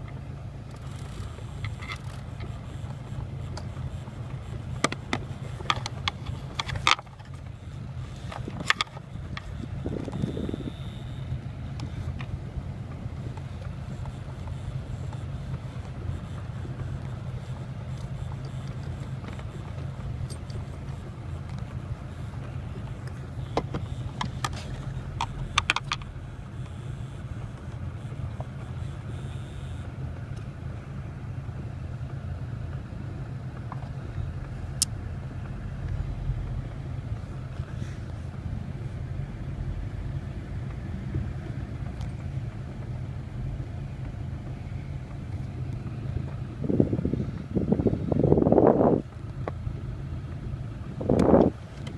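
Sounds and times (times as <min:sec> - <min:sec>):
car engine idling: 0:00.0 - 0:51.9
sharp clicks: 0:00.7 - 0:30.5.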